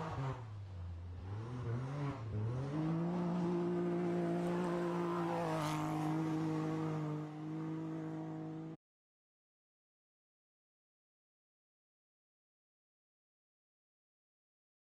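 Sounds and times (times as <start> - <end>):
rally car engine revving: 0.0 - 8.8.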